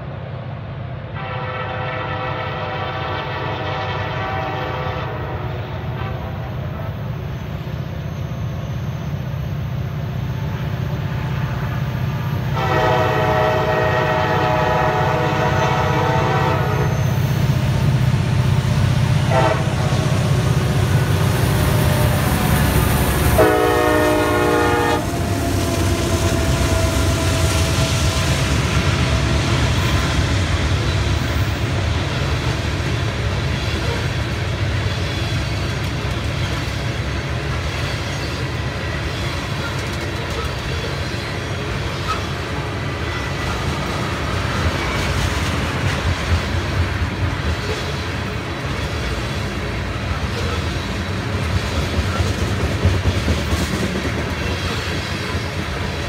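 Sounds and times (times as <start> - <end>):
diesel locomotive engine rumbling: 0.0 - 56.0
locomotive air horn blasts: 1.2 - 6.5, 12.5 - 17.0, 19.2 - 20.2, 23.4 - 27.9.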